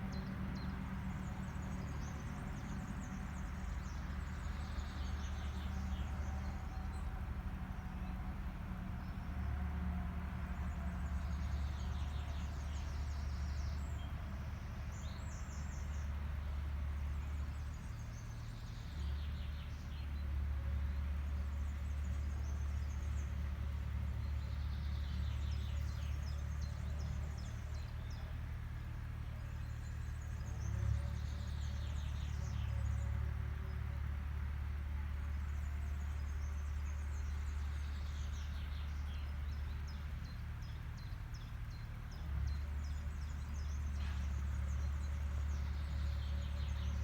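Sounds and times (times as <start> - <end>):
agricultural machine engine droning: 0.0 - 47.0
birds singing rapid trills: 35.3 - 47.0.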